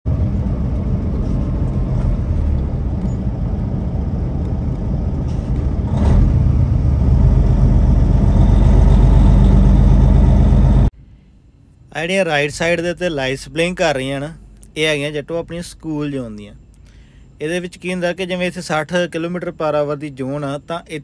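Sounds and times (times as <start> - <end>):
vehicle engine hum and road rumble: 0.1 - 10.9.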